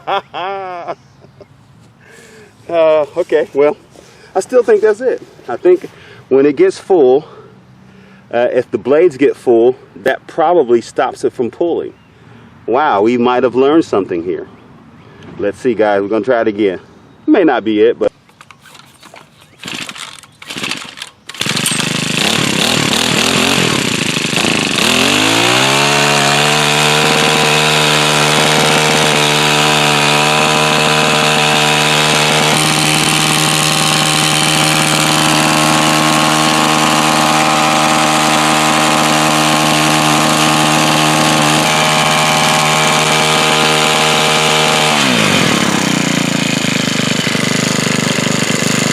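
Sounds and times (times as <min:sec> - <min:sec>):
pull starter cord: 0:18.2 - 0:48.9
small engine revving: 0:18.4 - 0:48.9.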